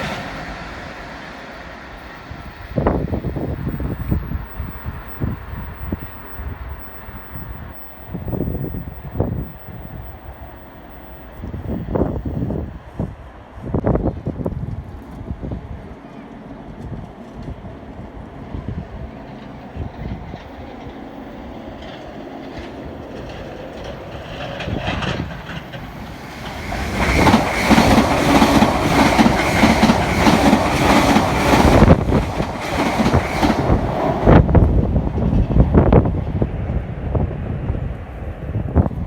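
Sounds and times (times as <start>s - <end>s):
wind buffeting microphone: 0.0s - 39.0s
train wheels clattering: 18.9s - 36.0s.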